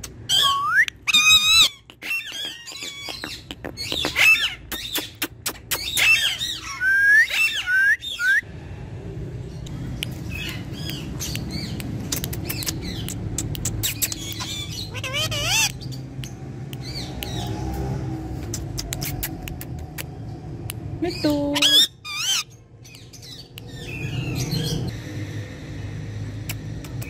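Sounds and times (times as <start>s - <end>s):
parrot chirps: 0.0s - 8.4s, 10.0s - 17.6s, 21.5s - 24.9s
parrot squawking and whistling: 0.0s - 8.4s, 12.4s - 16.0s, 21.5s - 22.5s.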